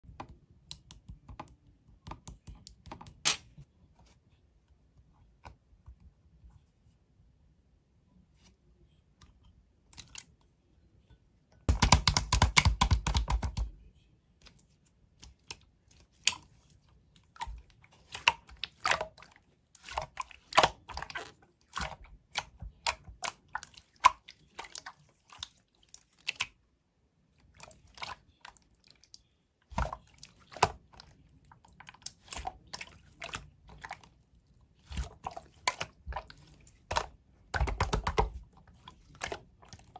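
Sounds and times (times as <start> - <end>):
sticky clicks and bubble pops: 11.7 - 13.6.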